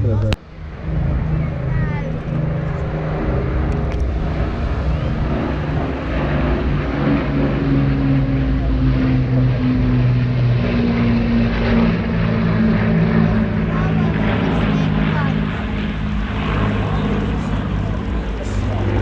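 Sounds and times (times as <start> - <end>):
aircraft piston engines droning: 0.0 - 19.0.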